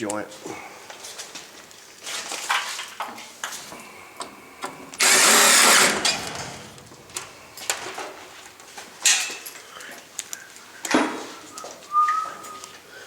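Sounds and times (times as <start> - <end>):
power driver driving screw: 5.0 - 6.7.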